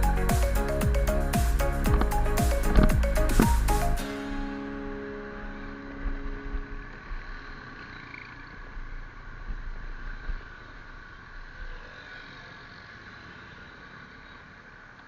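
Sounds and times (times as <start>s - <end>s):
vehicle engine rumbling: 0.0s - 4.4s, 5.4s - 12.2s.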